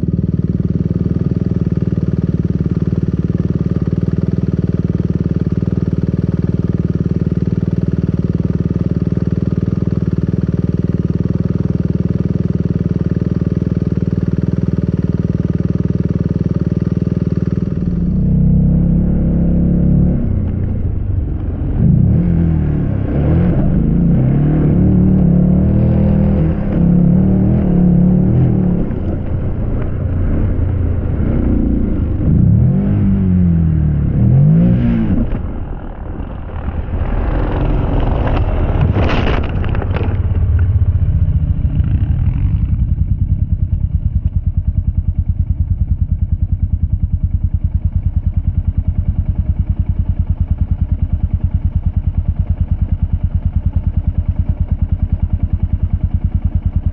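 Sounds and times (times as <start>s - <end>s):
engine running steadily: 0.0s - 56.9s
motocross bike engines revving: 18.8s - 40.3s
clatter of impacts: 36.2s - 41.1s.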